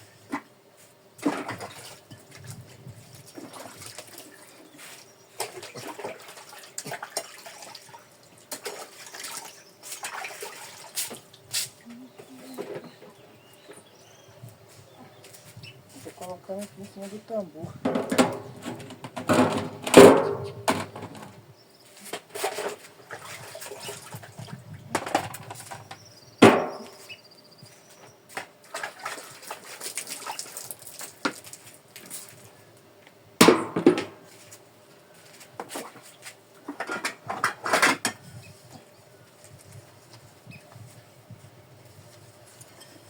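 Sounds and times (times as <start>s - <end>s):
water splashing: 5.4s - 11.2s, 28.7s - 31.6s
pots and dishes clattering: 17.9s - 21.0s.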